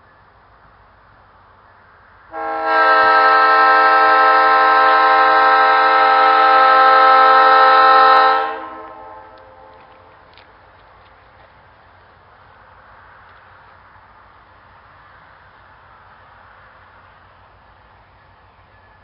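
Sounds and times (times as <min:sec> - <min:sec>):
train horn blast: 0:02.3 - 0:10.1.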